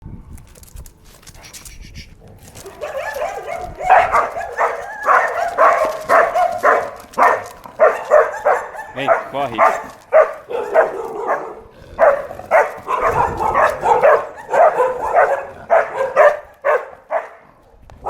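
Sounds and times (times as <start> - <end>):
dogs barking: 2.5 - 17.8.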